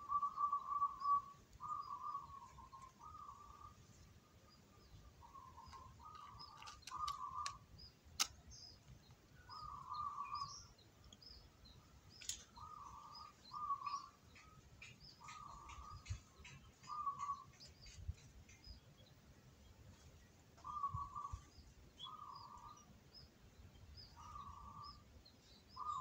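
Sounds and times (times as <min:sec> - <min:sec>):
small birds chirping: 0:00.0 - 0:26.0
sharp clicks: 0:05.6 - 0:09.1.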